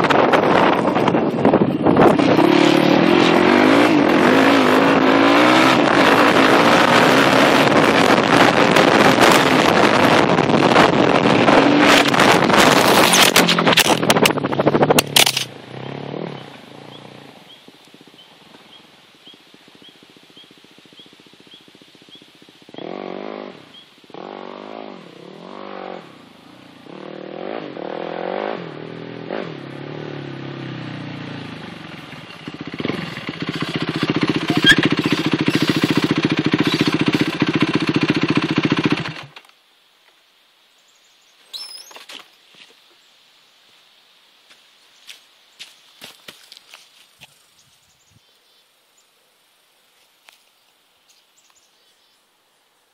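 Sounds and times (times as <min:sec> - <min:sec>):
dirt bike engine revving: 0:00.0 - 0:18.9, 0:19.7 - 0:39.4.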